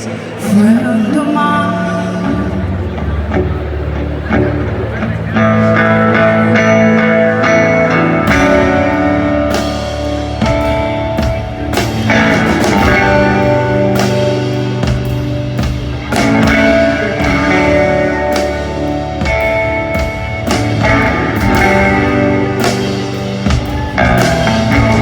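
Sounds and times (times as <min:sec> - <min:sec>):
band playing slow instrumental: 0:00.0 - 0:25.0.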